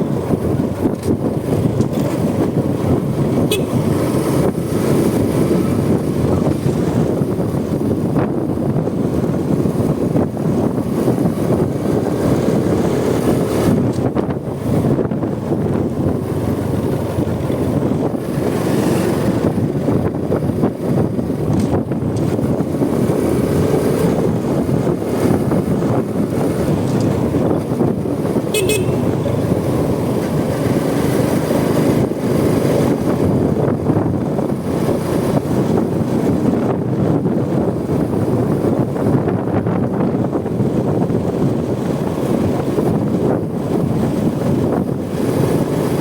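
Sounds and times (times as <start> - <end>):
motorcycle engine riding: 0.0 - 46.0
road and traffic noise: 0.0 - 46.0
wind rush: 0.0 - 46.0
vehicle horn toot: 3.4 - 4.0, 28.4 - 29.6
short high beep: 28.6 - 29.2.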